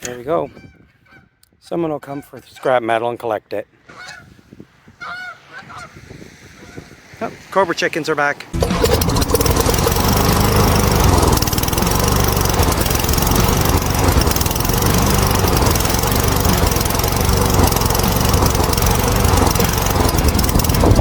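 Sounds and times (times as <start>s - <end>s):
lawn mower engine running: 8.6s - 21.0s.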